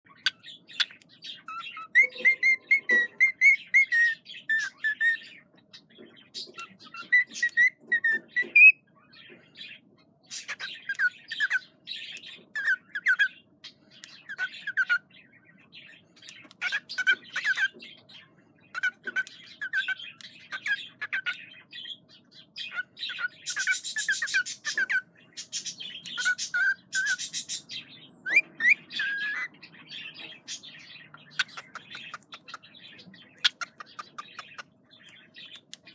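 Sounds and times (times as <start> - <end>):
cockatiel chirping and whistling: 0.2 - 5.4, 6.4 - 8.8, 10.4 - 11.6, 12.2 - 13.4, 14.0 - 15.0, 16.3 - 17.8, 18.7 - 21.4, 22.7 - 29.5, 31.3 - 32.6, 33.4 - 34.6.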